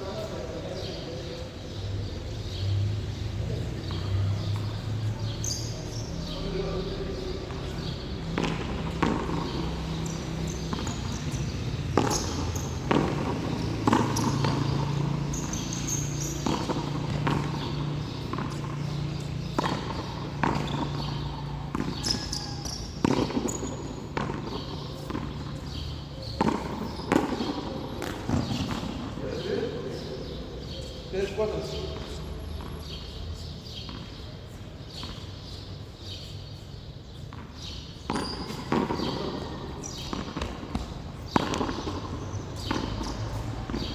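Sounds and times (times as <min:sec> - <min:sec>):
ball bouncing off wall and court: 0:07.5 - 0:29.2, 0:37.3 - 0:43.9.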